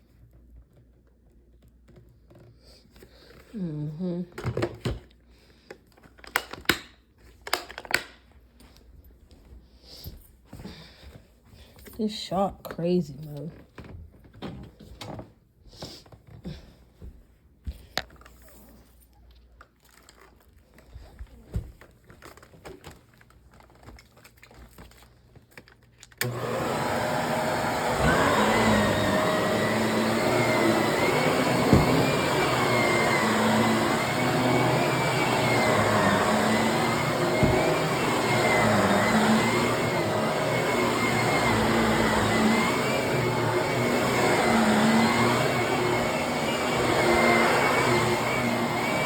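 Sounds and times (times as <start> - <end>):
vacuum cleaner running: 26.2 - 49.0.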